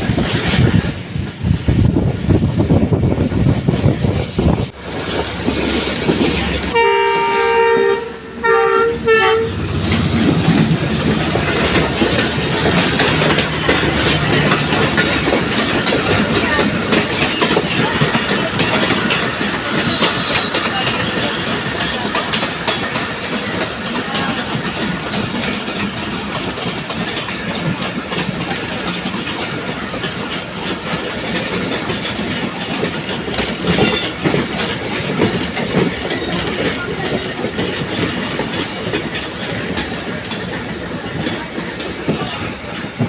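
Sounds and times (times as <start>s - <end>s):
train rumbling by: 0.0s - 43.0s
wheels clacking over rail joints: 0.0s - 43.0s
train horn blasts: 6.7s - 9.6s.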